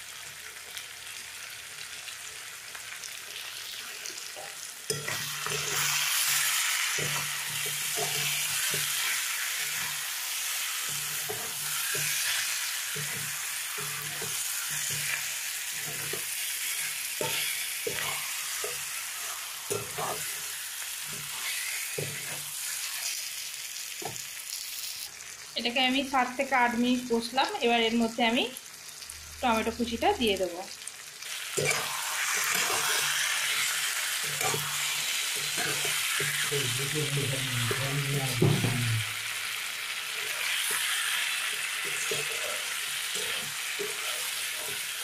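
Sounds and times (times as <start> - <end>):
chicken sizzling in oil: 0.0 - 45.0
spatula scraping pan: 4.2 - 23.3, 31.3 - 39.0, 40.2 - 45.0.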